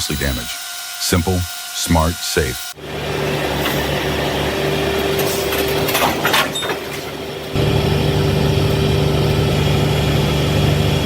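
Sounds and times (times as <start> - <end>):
heavy equipment engine running: 2.8 - 11.0.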